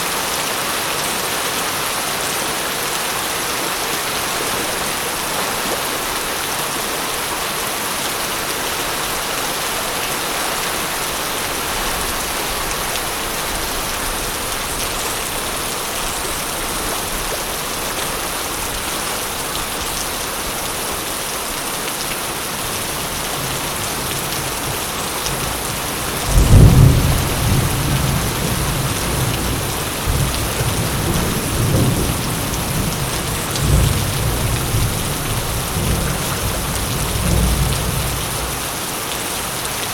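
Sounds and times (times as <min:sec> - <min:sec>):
rain falling: 0:00.0 - 0:39.9
thunder clap and rumbles: 0:25.3 - 0:38.5.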